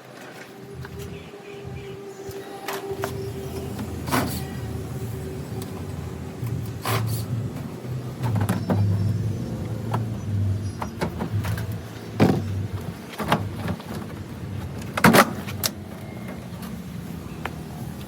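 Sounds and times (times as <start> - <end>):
low steady rumble: 0.6 - 18.0.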